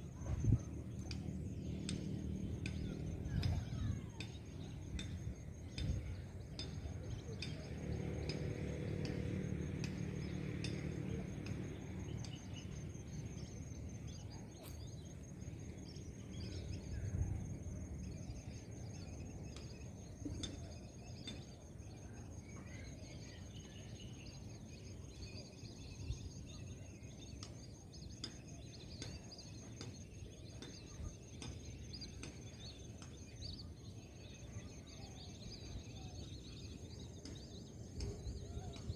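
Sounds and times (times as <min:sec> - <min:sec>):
bird chirps and calls: 0:18.0 - 0:38.9.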